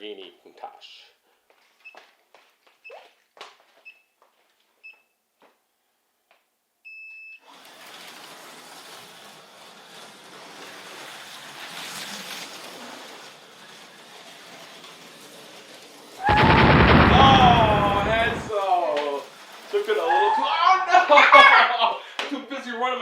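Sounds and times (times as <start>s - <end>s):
slot cars whirring: 7.5s - 20.0s.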